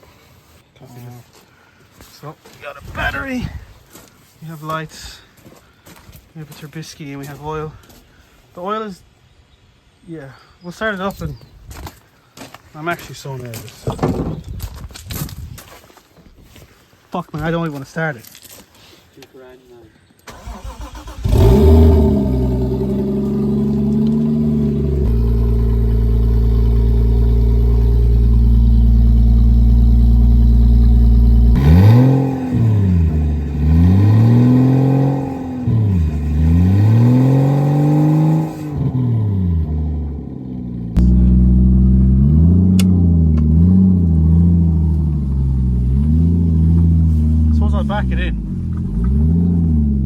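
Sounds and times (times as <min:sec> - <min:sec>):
car engine starting and revving: 0:20.3 - 0:50.0.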